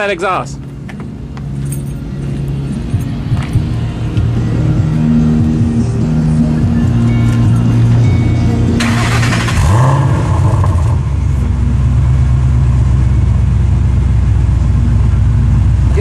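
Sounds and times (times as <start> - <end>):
car engine revving and idling: 0.6 - 16.0
car engine cranking: 6.9 - 16.0.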